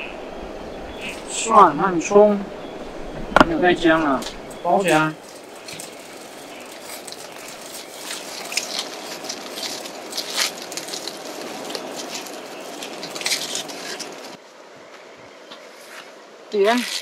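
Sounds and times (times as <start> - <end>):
stream water rushing: 0.0 - 14.4
wrapping crinkling: 4.8 - 14.4.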